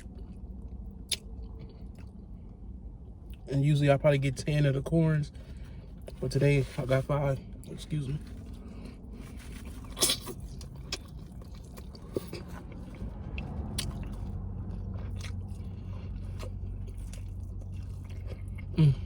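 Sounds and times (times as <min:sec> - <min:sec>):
person chewing food: 0:00.0 - 0:02.7, 0:07.6 - 0:19.0.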